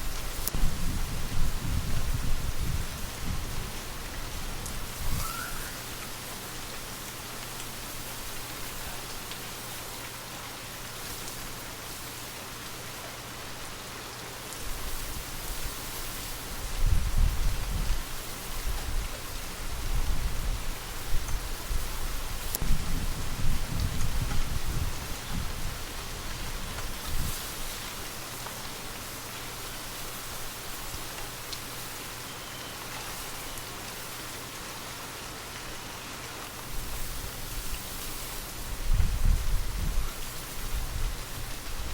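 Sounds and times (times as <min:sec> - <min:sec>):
light wind: 0:00.0 - 0:41.9
steady rainfall: 0:00.0 - 0:41.9.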